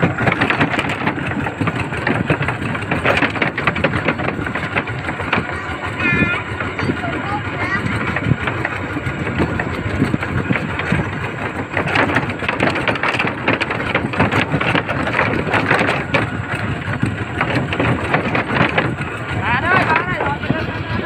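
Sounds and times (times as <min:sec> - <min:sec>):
small tractor engine running: 0:00.0 - 0:21.0.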